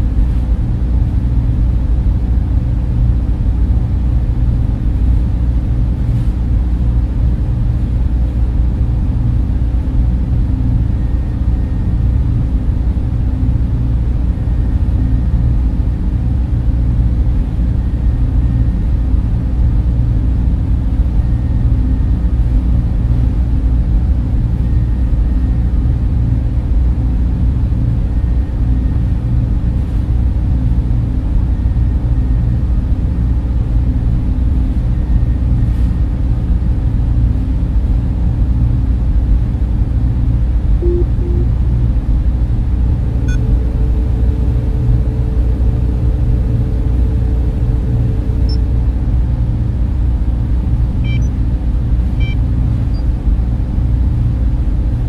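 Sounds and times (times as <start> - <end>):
cooling fans humming: 0.0 - 55.0.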